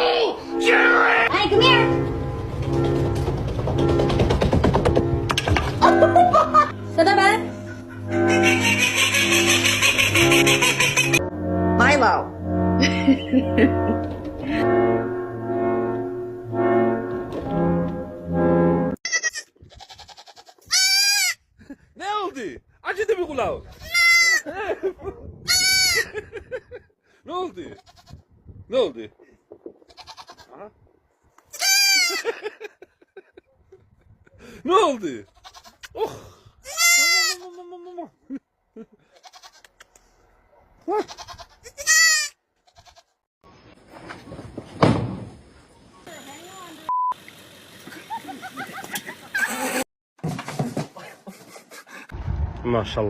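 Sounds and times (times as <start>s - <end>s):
goat bleating: 8.1s - 11.2s, 19.0s - 21.4s, 23.7s - 24.4s, 25.5s - 26.0s, 27.7s - 28.2s, 29.9s - 30.5s, 31.5s - 32.2s, 35.2s - 35.9s, 36.6s - 37.9s, 39.1s - 39.8s, 40.9s - 43.2s
slow melody of held notes: 11.2s - 19.0s.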